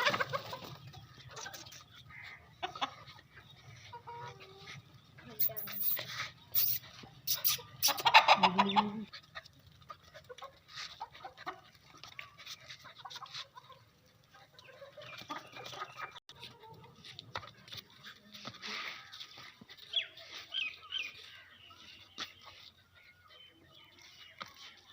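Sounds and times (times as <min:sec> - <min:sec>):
faint animal calls and chirps: 0:03.8 - 0:09.1.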